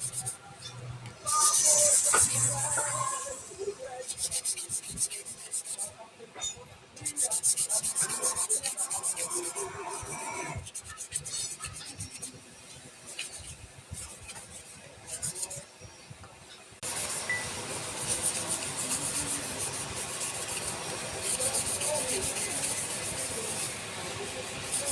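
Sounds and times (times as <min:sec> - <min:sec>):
wood rasping on a lathe: 0:16.8 - 0:24.9.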